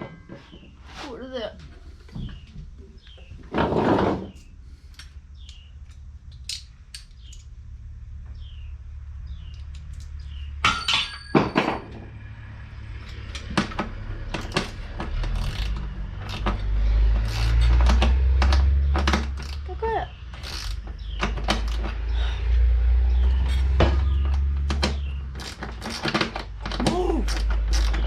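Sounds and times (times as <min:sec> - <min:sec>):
metal tools clinking and knocking: 0:09.6 - 0:12.1.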